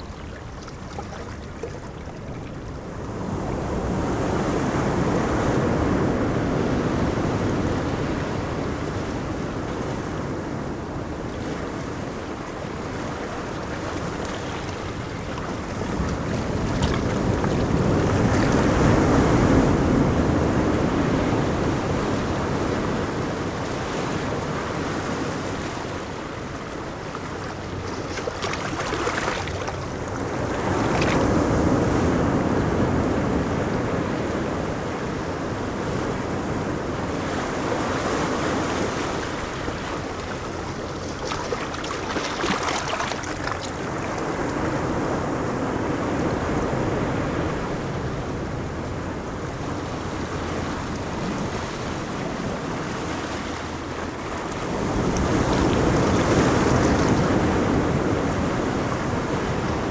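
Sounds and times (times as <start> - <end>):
ocean waves breaking on beach: 0.0 - 59.9
wind noise on microphone: 0.0 - 59.9.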